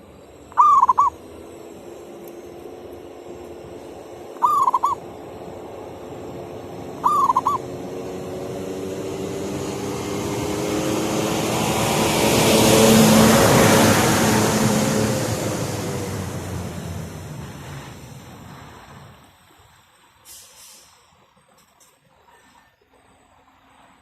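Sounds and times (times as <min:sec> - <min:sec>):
motor vehicle passing: 0:00.0 - 0:19.3
dove cooing: 0:00.5 - 0:01.3, 0:04.4 - 0:05.1, 0:06.9 - 0:07.8.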